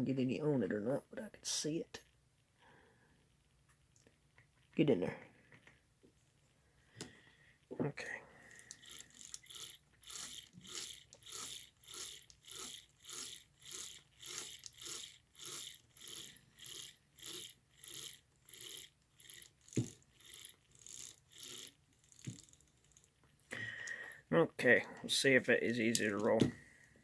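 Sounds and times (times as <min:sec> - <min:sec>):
toy train gears whirring: 0:08.4 - 0:23.4, 0:25.5 - 0:26.5.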